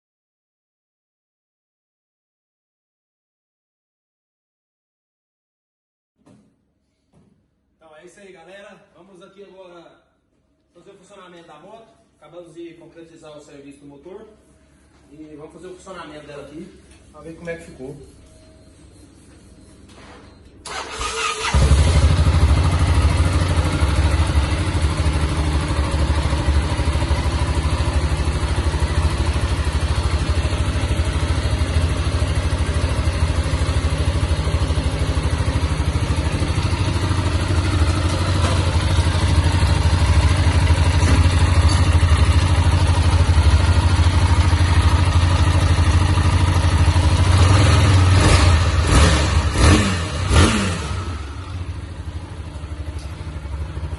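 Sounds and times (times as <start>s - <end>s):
motorcycle engine starting and running: 20.6s - 53.9s.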